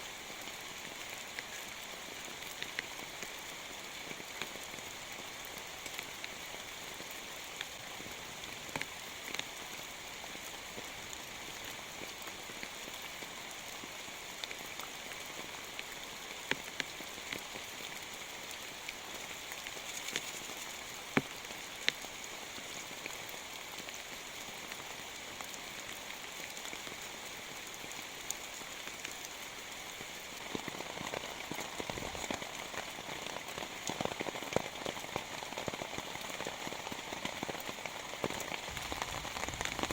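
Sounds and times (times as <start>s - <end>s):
rain falling: 0.0s - 39.9s
sharp raindrop impacts: 37.0s - 39.9s.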